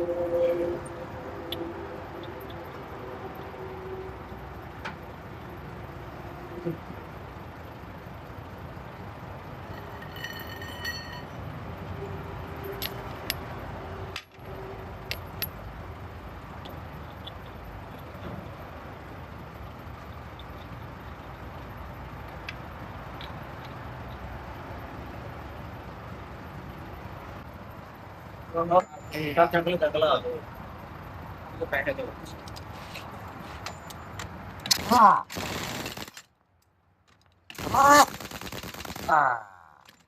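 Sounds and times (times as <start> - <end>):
vehicle road noise: 0.0 - 40.0
ringing tone: 9.7 - 11.4
sharp clicks: 33.9 - 39.1.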